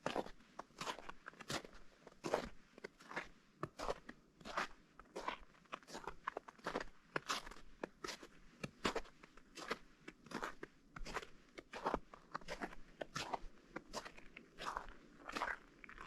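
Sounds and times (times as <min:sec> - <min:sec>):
footsteps crunching on snow: 0:08.9 - 0:16.0.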